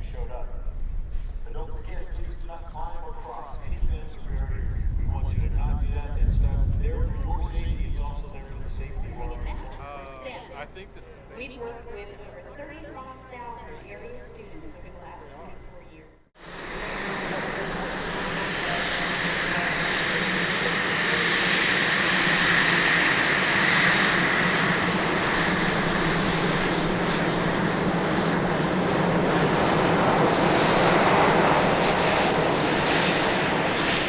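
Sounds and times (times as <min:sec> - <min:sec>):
jet engines running: 0:00.0 - 0:34.0
high whistling whine: 0:16.3 - 0:34.0.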